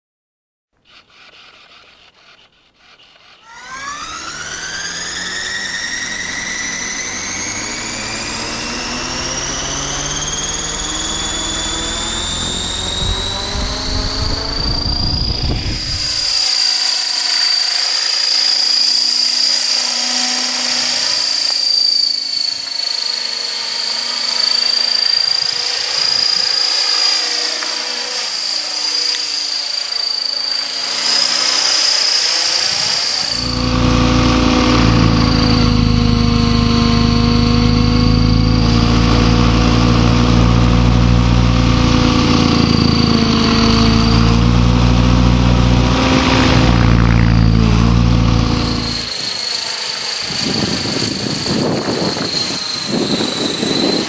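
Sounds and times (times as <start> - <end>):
model motor whine rising: 3.4 - 54.0
low rumble: 42.2 - 49.1.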